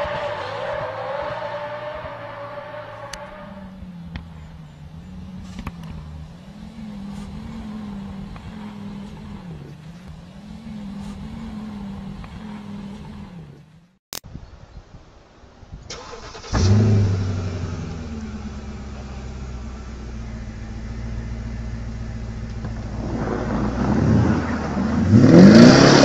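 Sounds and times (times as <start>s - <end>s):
car engine revving high: 23.2s - 26.0s.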